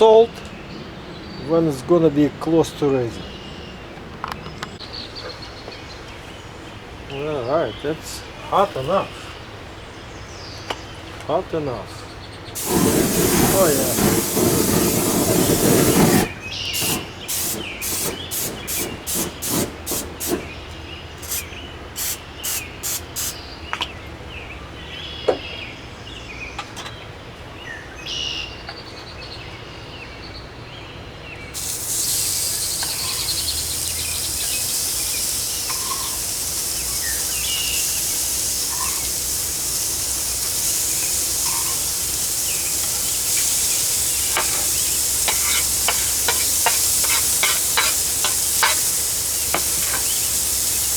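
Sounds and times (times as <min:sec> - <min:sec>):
patties sizzling on a grill: 0:12.6 - 0:20.5, 0:21.2 - 0:23.4, 0:31.6 - 0:50.9
short hissing bursts: 0:12.6 - 0:20.6, 0:21.2 - 0:23.4, 0:31.6 - 0:50.9.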